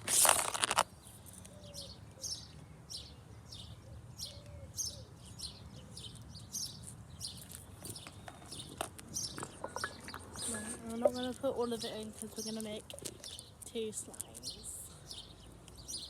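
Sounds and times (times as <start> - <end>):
loud rustle: 0.0 - 0.9
small birds chirping: 0.0 - 16.0.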